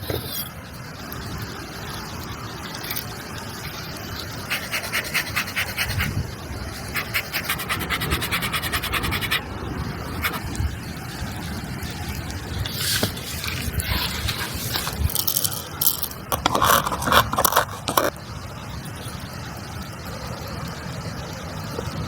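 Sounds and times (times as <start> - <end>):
rapid rhythmic scraping: 3.7 - 10.6, 12.4 - 18.2.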